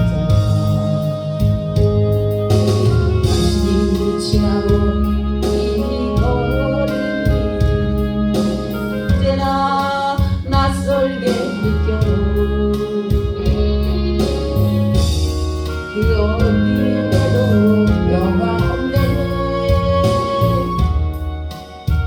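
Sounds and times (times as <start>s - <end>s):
instrumental accompaniment: 0.0s - 22.0s
person singing a hymn: 3.2s - 13.8s, 15.6s - 21.2s.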